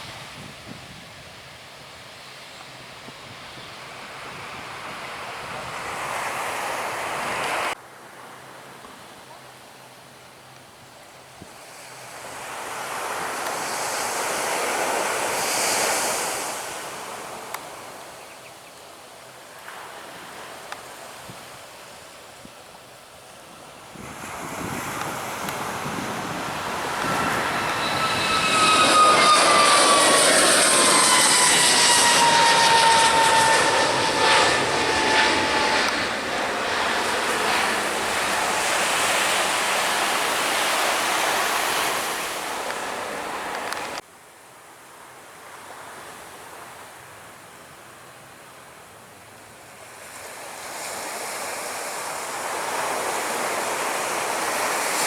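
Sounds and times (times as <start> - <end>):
faint surf: 0.0 - 55.0
jet airliner engines roaring past: 1.1 - 7.8, 11.6 - 18.0, 23.3 - 44.0, 49.9 - 55.0.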